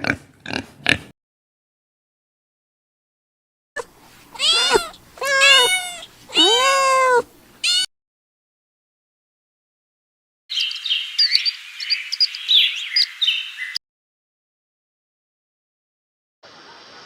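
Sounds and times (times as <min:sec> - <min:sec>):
cat meowing: 0:04.3 - 0:07.9.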